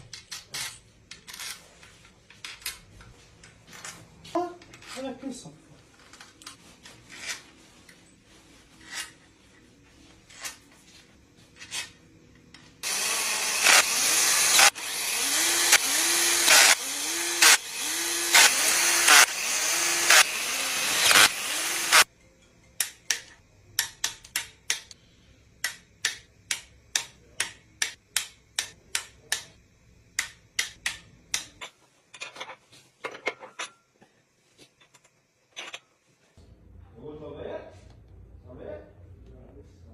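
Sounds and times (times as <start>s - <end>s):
power tool running in pulses: 12.8s - 22.1s.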